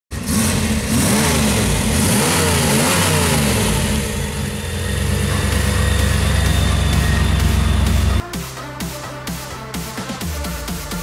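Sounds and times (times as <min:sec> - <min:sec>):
car engine revving: 0:00.1 - 0:08.2
low music beat: 0:04.9 - 0:11.0.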